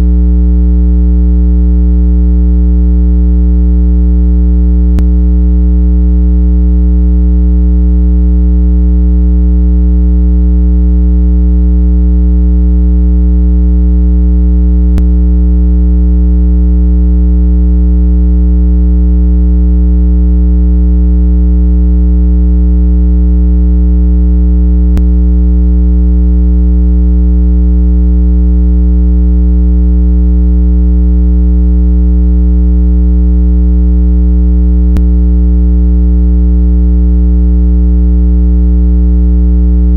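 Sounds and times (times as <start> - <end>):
low buzzy electronic tone: 0.0 - 1.2, 4.5 - 6.9, 14.6 - 16.6, 24.7 - 25.6, 34.8 - 35.2.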